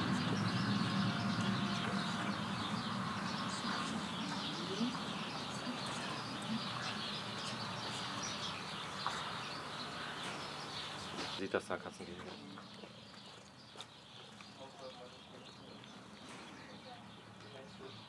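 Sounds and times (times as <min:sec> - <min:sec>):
steady low rumble: 0:00.0 - 0:11.2
small birds chirping: 0:00.0 - 0:18.0.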